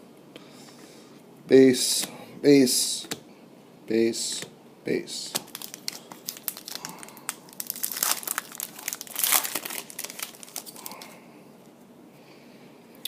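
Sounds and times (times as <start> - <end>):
foil wrapper crinkling and tearing: 5.4 - 11.2.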